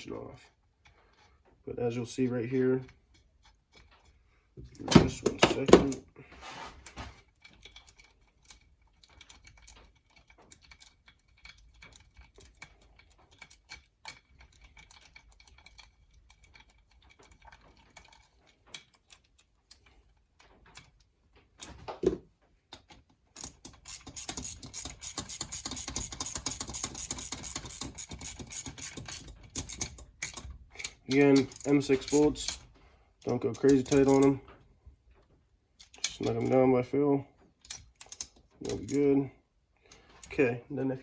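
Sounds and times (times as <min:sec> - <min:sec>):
metallic clicks of engine parts: 0:06.9 - 0:21.8, 0:22.4 - 0:40.6
ratchet wrench clicking: 0:23.4 - 0:32.6.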